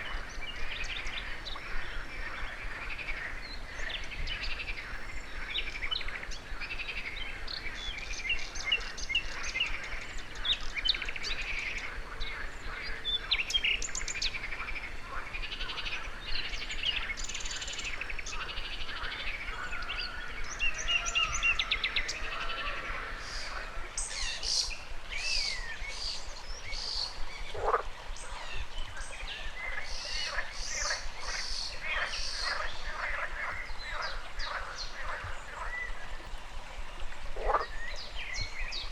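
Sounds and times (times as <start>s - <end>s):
birds chirping and trilling: 0.0s - 38.9s
frogs croaking: 0.0s - 38.9s
river water rushing: 13.4s - 38.9s.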